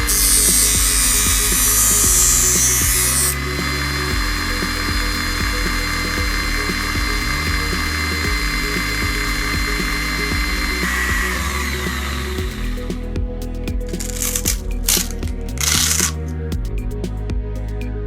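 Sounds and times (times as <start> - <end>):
belt sander motor whining: 0.0 - 12.9
background music: 0.0 - 18.0.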